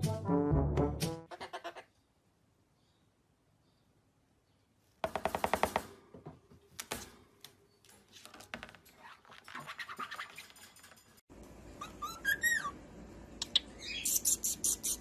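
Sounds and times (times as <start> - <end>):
bird chattering calls: 13.4 - 15.0.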